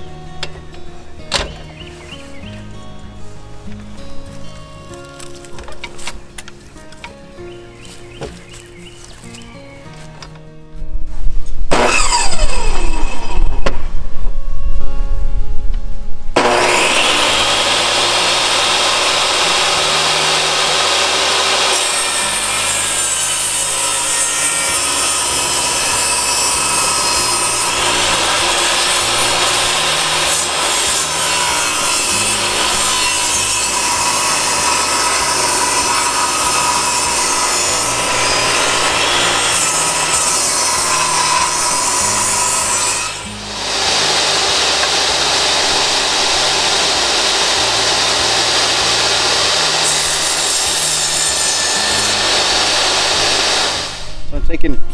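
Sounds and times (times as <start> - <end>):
saw cutting through wood: 11.7 - 13.8, 16.4 - 54.2.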